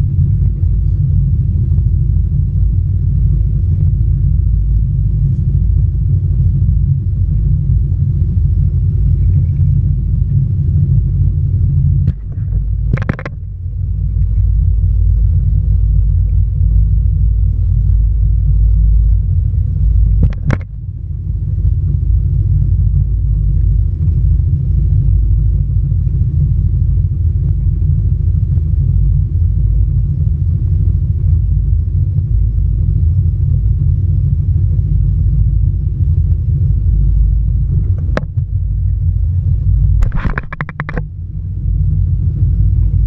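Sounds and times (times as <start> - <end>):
jet ski engine rumbling: 0.0 - 25.7, 36.6 - 43.0
sharp click: 12.0 - 13.4, 40.0 - 41.0.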